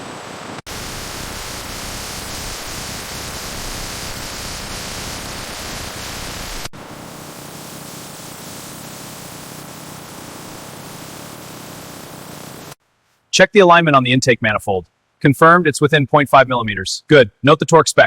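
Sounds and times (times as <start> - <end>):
steady hissing noise: 0.0 - 14.0.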